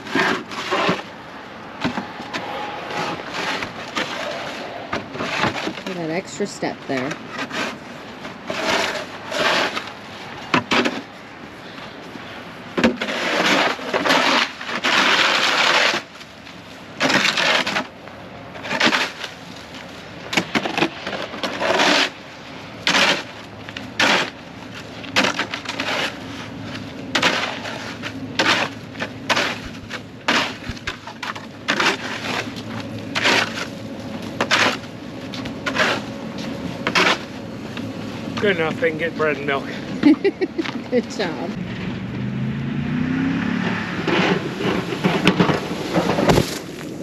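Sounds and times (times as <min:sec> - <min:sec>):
shovel scraping ice: 0:00.0 - 0:01.1, 0:01.8 - 0:11.8, 0:12.8 - 0:16.2, 0:17.0 - 0:17.9, 0:18.6 - 0:19.5, 0:20.4 - 0:22.2, 0:22.8 - 0:23.4, 0:24.0 - 0:33.8, 0:34.4 - 0:34.9, 0:35.6 - 0:36.1, 0:36.8 - 0:37.3, 0:44.1 - 0:47.0
ice cracking: 0:44.6 - 0:47.0.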